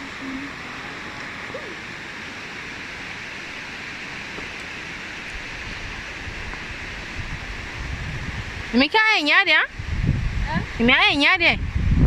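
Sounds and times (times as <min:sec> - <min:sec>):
waterfall rushing: 0:00.0 - 0:09.8.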